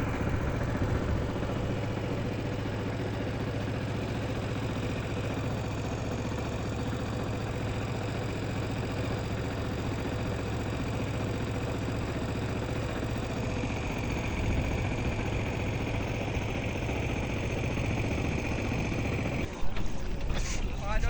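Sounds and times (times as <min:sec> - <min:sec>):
high steady whine: 0:00.0 - 0:03.5
motor engine running: 0:00.0 - 0:21.0.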